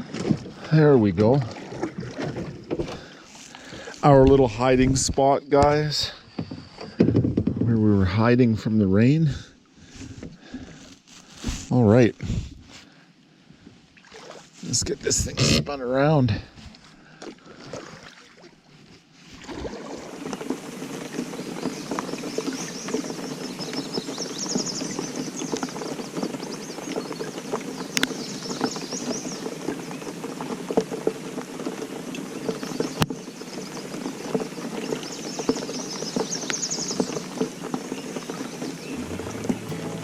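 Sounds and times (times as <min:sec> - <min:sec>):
rain pattering on water: 0:19.6 - 0:40.0
high chirping call: 0:38.8 - 0:40.0.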